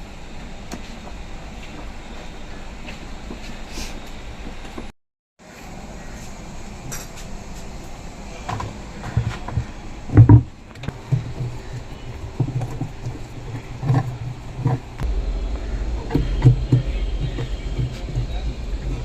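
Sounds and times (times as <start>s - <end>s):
loud clunk: 15.0s - 19.0s.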